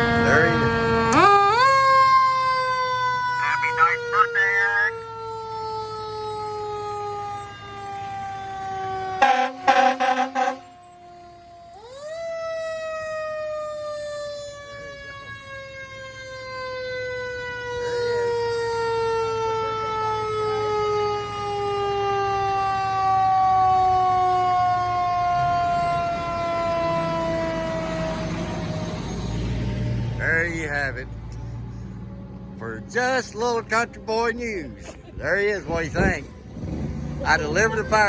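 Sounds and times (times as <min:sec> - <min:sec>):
mechanical siren wailing: 0:00.0 - 0:29.2.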